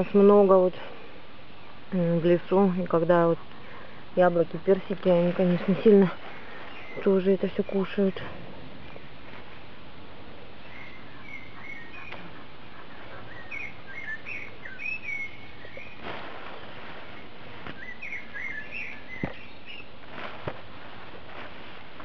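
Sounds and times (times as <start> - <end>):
steady background hiss: 0.0 - 22.0
bird chirping: 5.4 - 8.2, 10.6 - 16.1, 17.0 - 20.0.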